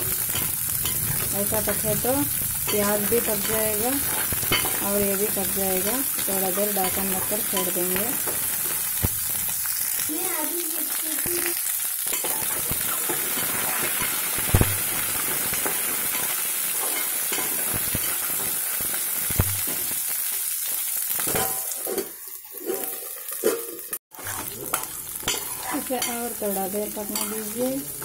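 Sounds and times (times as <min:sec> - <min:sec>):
vegetables sizzling in hot oil: 0:00.0 - 0:28.0.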